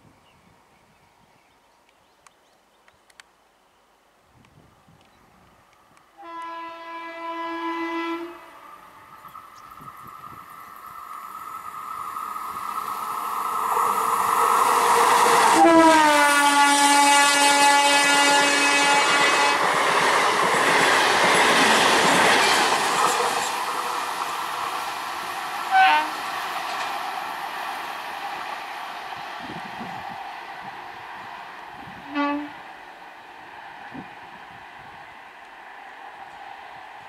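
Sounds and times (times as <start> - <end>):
train horn: 6.2 - 9.2, 15.5 - 19.6, 25.7 - 26.2, 32.0 - 32.6.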